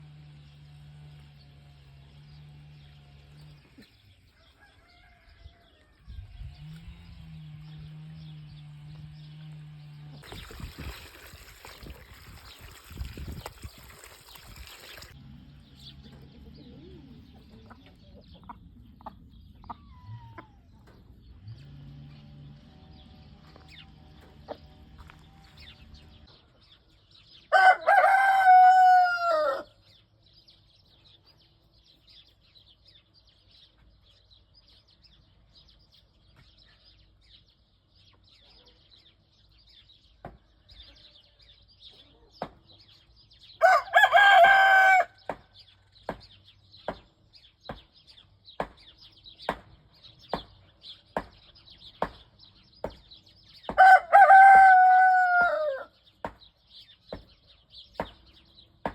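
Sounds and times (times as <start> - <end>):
rooster crowing: 4.3 - 6.2, 27.5 - 29.8, 43.6 - 45.2, 53.8 - 55.9.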